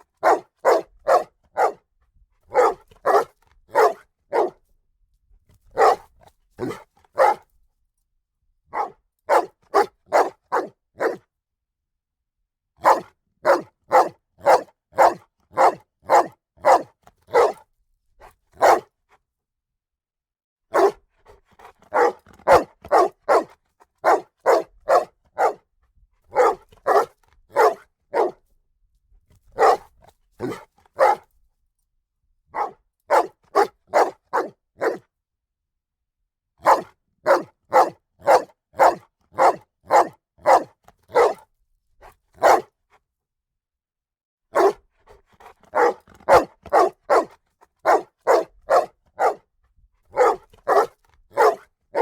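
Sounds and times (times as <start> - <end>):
dog barking: 0.0 - 1.9, 2.5 - 4.6, 5.7 - 7.5, 8.7 - 11.2, 12.8 - 17.6, 18.6 - 19.0, 20.7 - 25.7, 26.3 - 28.4, 29.5 - 31.3, 32.5 - 35.1, 36.6 - 41.5, 42.4 - 42.8, 44.5 - 49.5, 50.1 - 52.0.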